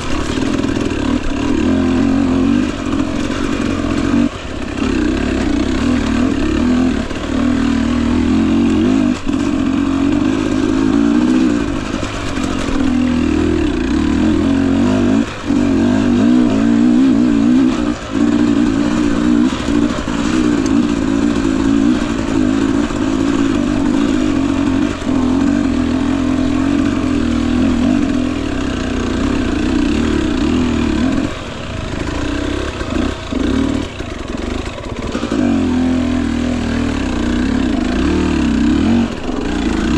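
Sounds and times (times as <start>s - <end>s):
dirt bike engine at low revs: 0.0s - 39.9s.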